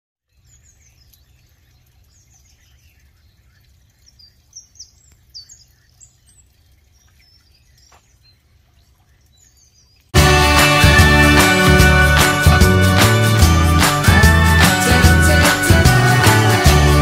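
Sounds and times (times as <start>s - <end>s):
small birds chirping: 0.2s - 10.2s.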